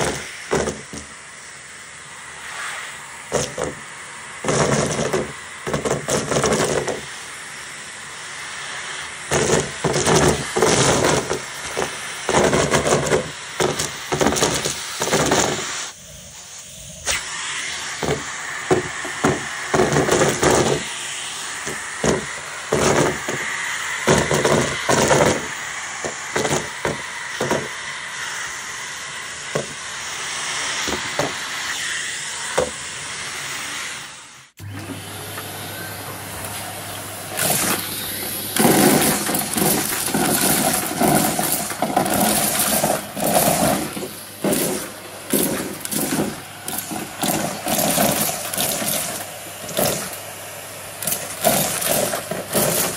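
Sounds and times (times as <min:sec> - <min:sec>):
vacuum cleaner suction hiss: 0:00.0 - 0:52.9
debris crunching in vacuum: 0:37.3 - 0:50.3, 0:51.0 - 0:52.9.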